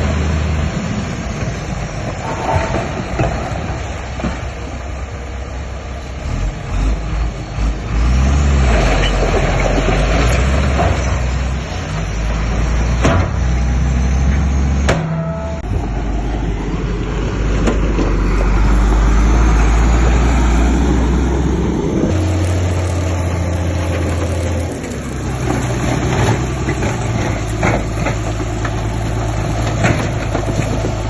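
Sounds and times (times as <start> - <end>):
diesel machinery engine drone: 0.0 - 31.0
sharp metallic clanks: 14.9 - 15.8.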